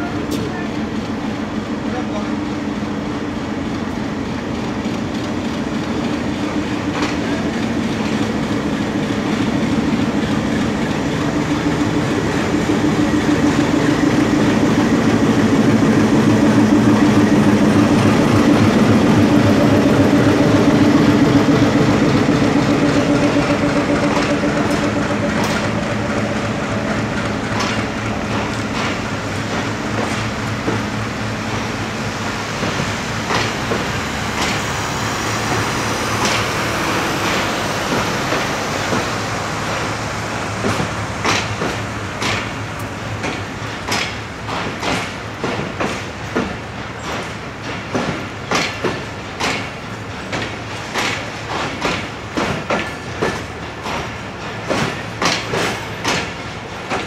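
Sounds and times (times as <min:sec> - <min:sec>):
diesel locomotive engine drone: 0:00.0 - 0:57.0
wheels clacking over rail joints: 0:05.2 - 0:31.8, 0:32.6 - 0:40.0, 0:40.6 - 0:57.0.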